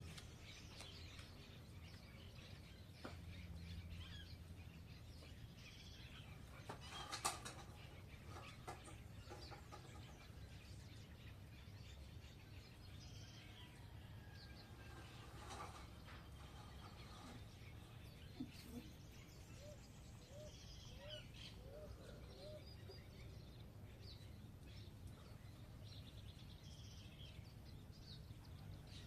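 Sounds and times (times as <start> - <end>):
small birds chirping: 0.0 - 29.0
wing flutter clatter: 6.5 - 10.3, 14.7 - 18.8.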